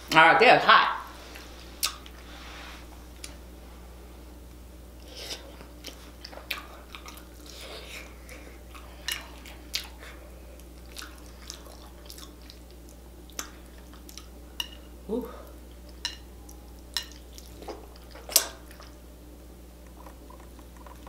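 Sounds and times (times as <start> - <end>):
low steady hum: 0.0 - 21.0
wet chewing and lip smacks: 8.7 - 14.3.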